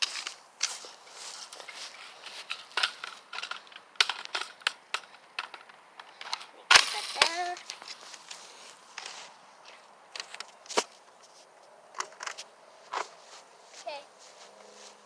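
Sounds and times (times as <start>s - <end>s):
footsteps crunching on dry ground: 0.0s - 3.8s, 6.9s - 15.0s
sharp crack: 2.4s - 8.4s.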